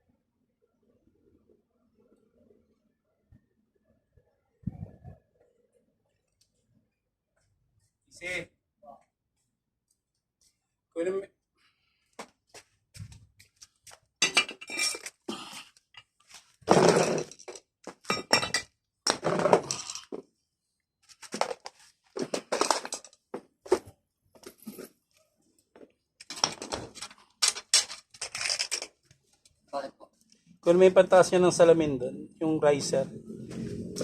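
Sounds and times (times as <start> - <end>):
metal tools clinking and clattering: 14.2 - 15.2, 16.7 - 18.7, 22.4 - 23.2, 26.2 - 28.9.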